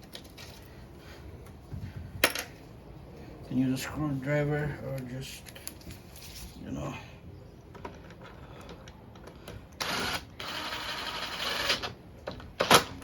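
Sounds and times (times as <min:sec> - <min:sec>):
power tool driving screw: 0:09.8 - 0:11.9.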